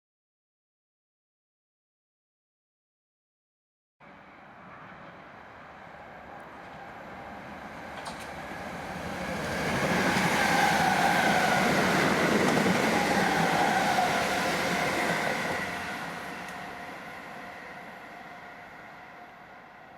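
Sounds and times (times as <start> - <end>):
train wheels rumbling: 6.2 - 17.3.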